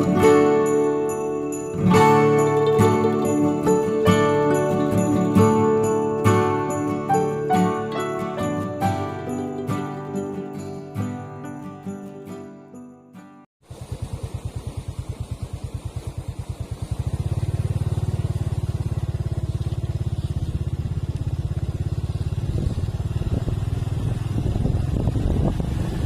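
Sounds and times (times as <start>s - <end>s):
vehicle engine running: 13.7s - 26.0s.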